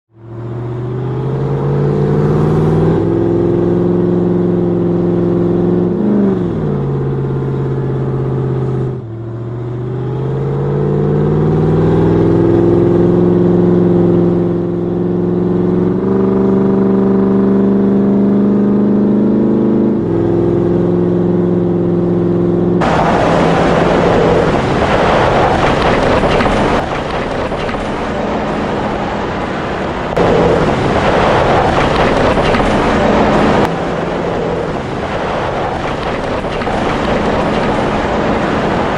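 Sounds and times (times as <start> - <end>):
vehicle engine shifting gears: 0.1 - 38.9
loud rushing noise: 22.8 - 38.9.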